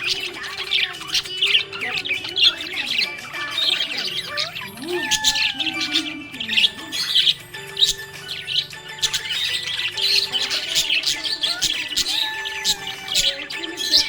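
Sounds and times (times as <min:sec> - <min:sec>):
budgerigars chirping: 0:00.0 - 0:14.0.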